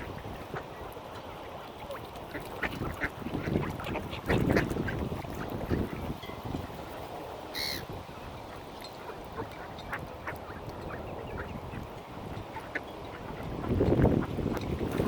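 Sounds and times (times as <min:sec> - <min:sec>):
ducks quacking: 0:00.0 - 0:06.1.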